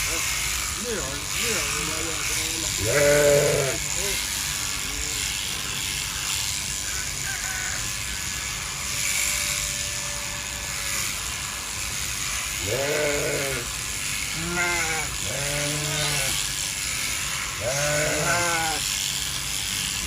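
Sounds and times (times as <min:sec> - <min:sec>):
electric clippers buzzing: 0:00.0 - 0:20.0
sheep bleating: 0:02.2 - 0:04.2, 0:12.6 - 0:16.6, 0:17.5 - 0:19.0.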